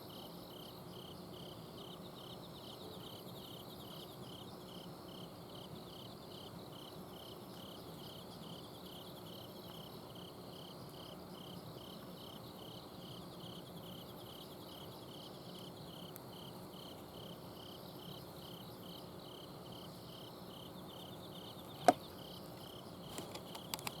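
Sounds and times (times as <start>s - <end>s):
crickets chirping: 0.0s - 24.0s
sharp click: 23.1s - 24.0s.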